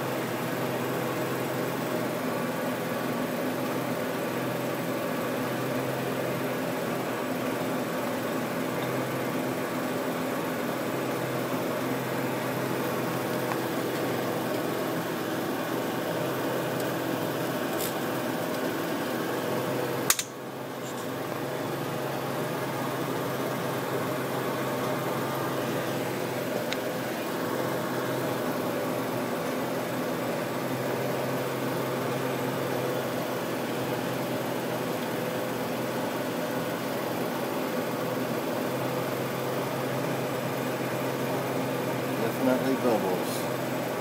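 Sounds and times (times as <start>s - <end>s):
car engine idling: 0.1s - 43.6s
sharp click: 20.1s - 21.1s.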